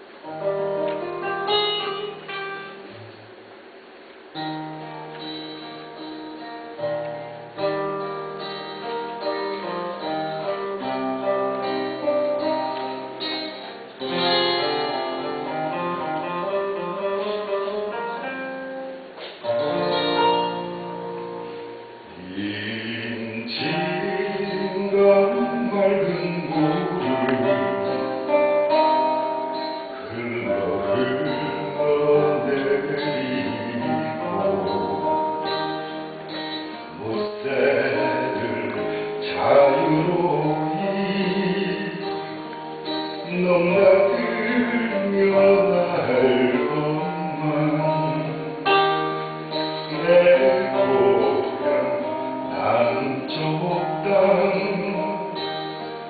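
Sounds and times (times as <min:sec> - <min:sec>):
acoustic guitar chords: 0:00.0 - 0:56.0.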